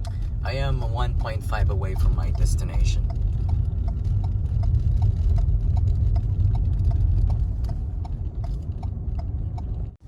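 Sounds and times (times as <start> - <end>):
car cabin road rumble: 0.0 - 10.0
car turn signal ticking: 0.0 - 10.0.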